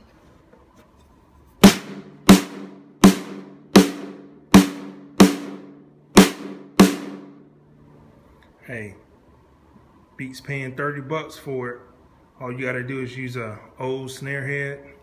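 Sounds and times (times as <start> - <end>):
snare drum hits: 1.6 - 7.4.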